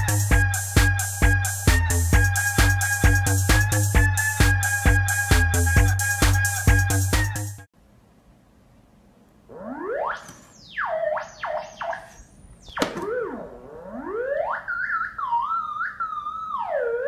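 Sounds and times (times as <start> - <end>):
theremin tone sliding in pitch: 9.5 - 17.0.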